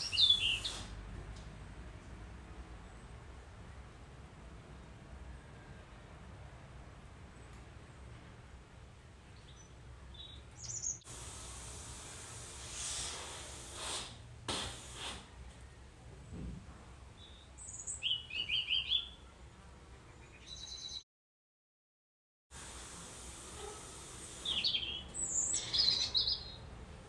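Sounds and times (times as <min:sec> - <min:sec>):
small birds chirping: 0:00.0 - 0:00.9, 0:09.4 - 0:11.1, 0:17.1 - 0:21.0, 0:23.7 - 0:27.0.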